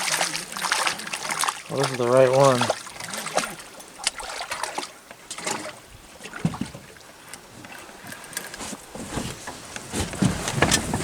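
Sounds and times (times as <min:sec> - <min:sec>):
water splashing against boat: 0:00.0 - 0:11.0.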